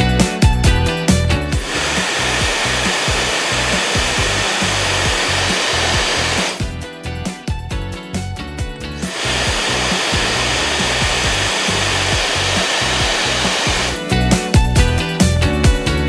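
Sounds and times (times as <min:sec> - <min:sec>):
hair dryer blowing: 0:00.4 - 0:06.8, 0:08.8 - 0:14.1.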